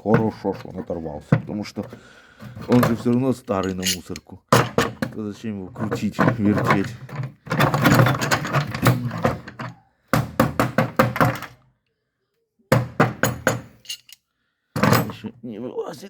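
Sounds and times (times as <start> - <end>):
rapid sharp knocking on metal part: 10.2 - 11.3.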